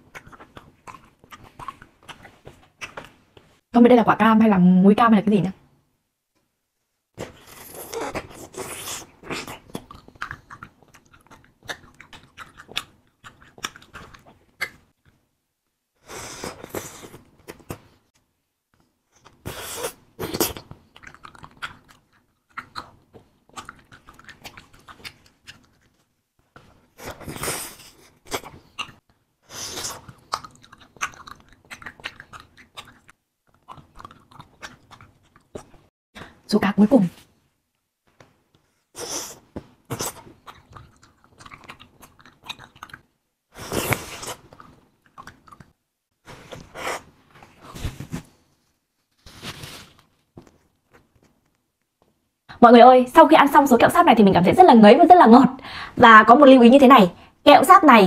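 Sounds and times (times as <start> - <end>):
wet sticky chewing: 0.0 - 3.2, 7.3 - 15.2, 20.3 - 29.0, 29.7 - 35.9, 39.8 - 43.1, 43.7 - 45.8.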